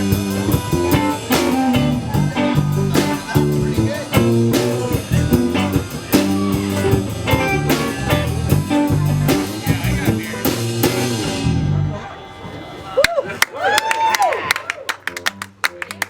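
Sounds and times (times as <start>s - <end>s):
drum kit beat: 0.0s - 11.7s
guitar: 0.0s - 13.0s.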